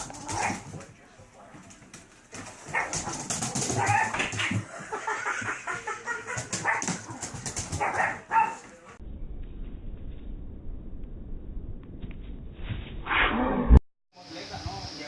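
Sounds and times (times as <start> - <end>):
dog barking and yelping: 2.7 - 4.6, 6.3 - 8.6.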